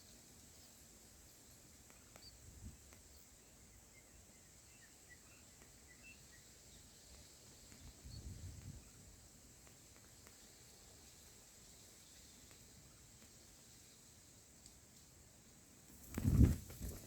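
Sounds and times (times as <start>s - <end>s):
steady high hiss: 0.0s - 17.0s
faint bird chirps: 0.5s - 10.5s.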